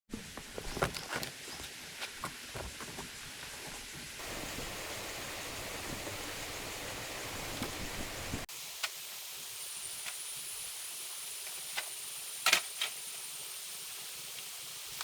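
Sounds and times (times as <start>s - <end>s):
steady hiss: 0.1s - 15.0s.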